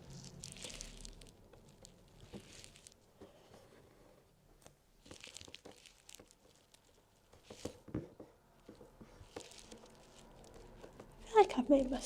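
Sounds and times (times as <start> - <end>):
wool pulled through fabric: 0.0 - 3.8, 9.1 - 12.0.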